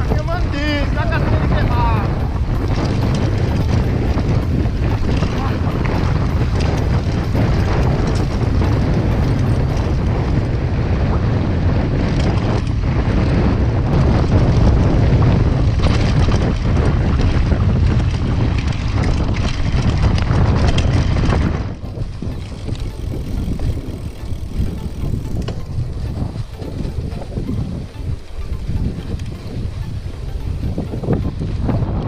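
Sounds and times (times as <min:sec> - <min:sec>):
bike clattering over rough trail: 0:00.0 - 0:32.0
wind buffeting microphone: 0:00.0 - 0:32.0.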